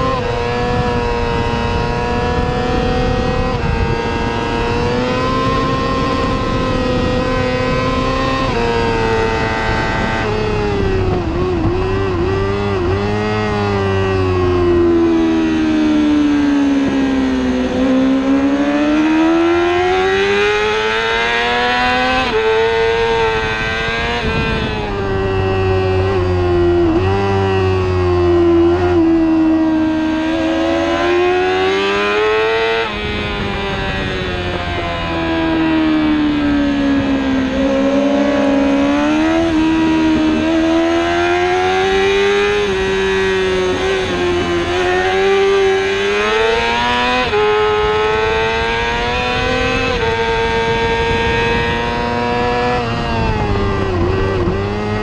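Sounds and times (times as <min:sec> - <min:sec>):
motorcycle engine at race pace: 0:00.0 - 0:55.0.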